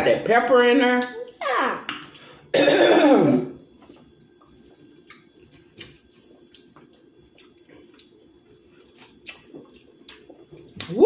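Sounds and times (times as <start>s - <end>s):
chewing and lip smacks: 3.6s - 11.0s.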